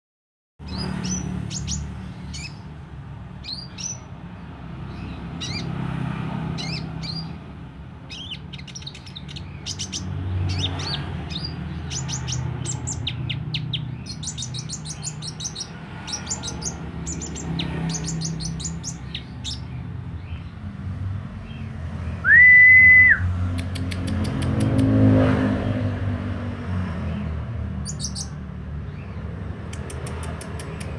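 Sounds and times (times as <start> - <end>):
sunbird singing: 0.6 - 2.7, 3.4 - 5.8, 6.5 - 7.4, 8.0 - 20.7, 27.1 - 30.0.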